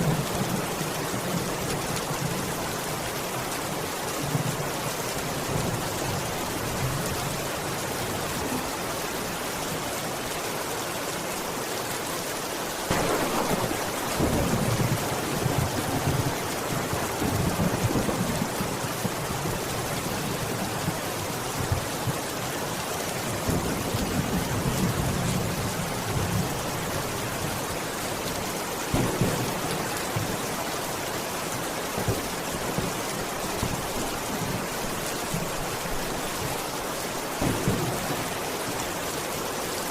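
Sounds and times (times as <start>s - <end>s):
steady rain falling: 0.0s - 39.9s
thunder rumbling: 12.9s - 19.7s, 28.9s - 30.5s, 37.4s - 38.5s.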